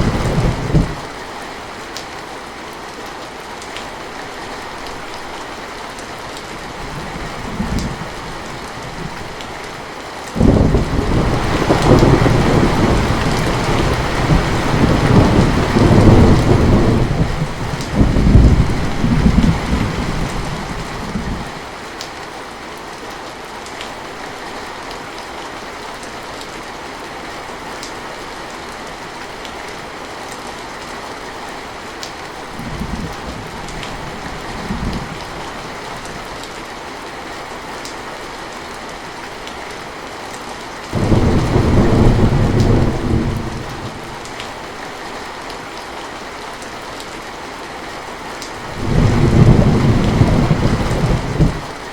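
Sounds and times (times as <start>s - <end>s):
thunder rolling: 0.0s - 1.0s, 10.4s - 21.5s, 41.0s - 44.2s, 48.7s - 51.7s
low thunder rumbles: 0.0s - 1.1s, 10.4s - 21.5s, 41.0s - 44.3s, 48.7s - 51.8s
heavy rain: 0.0s - 51.9s
loud thunder peal: 10.4s - 19.9s, 41.0s - 43.9s.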